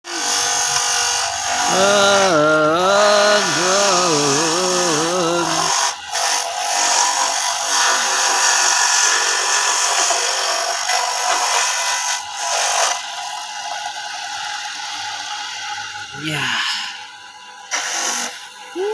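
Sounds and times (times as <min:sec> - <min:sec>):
coconut grating machine grinding: 0:00.0 - 0:18.9
wavering pitched tone: 0:01.6 - 0:05.7.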